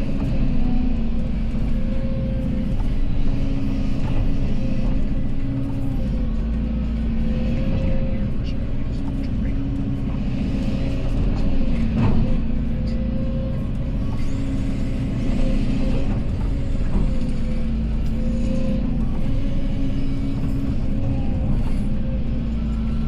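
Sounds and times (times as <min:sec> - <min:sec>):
excavator diesel engine running: 0:00.0 - 0:23.0
machine knocks and clanks: 0:10.9 - 0:13.0.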